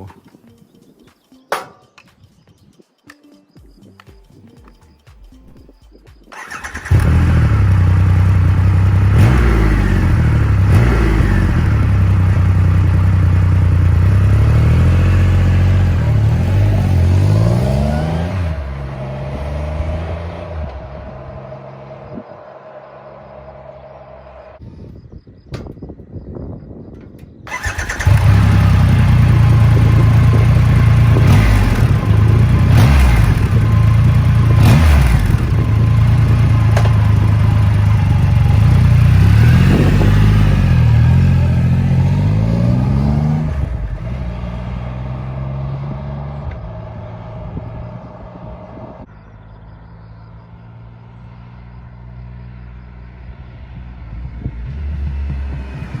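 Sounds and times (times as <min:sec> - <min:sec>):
motorcycle engine revving: 0:06.3 - 0:22.4, 0:27.5 - 0:49.0, 0:50.3 - 0:56.0.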